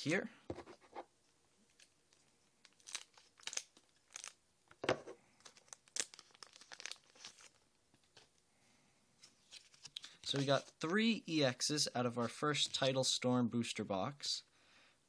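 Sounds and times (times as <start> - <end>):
wrapper tearing and crinkling: 2.6 - 4.4, 5.4 - 7.6.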